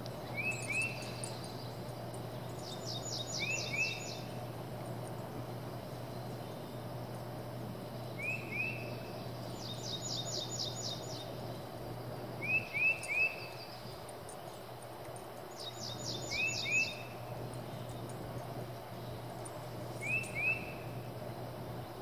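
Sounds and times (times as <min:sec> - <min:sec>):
low outdoor hum: 0:00.0 - 0:22.0
songbird singing: 0:00.0 - 0:22.0.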